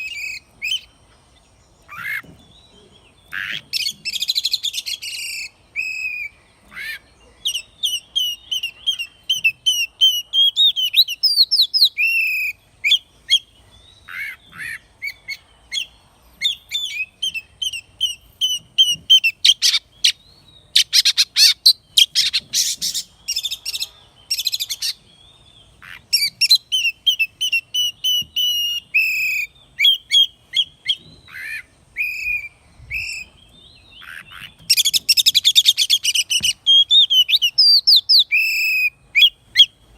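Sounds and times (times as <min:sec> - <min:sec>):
bird singing whistled phrases: 0:03.8 - 0:06.4, 0:07.5 - 0:13.5, 0:26.1 - 0:33.4, 0:34.0 - 0:39.7.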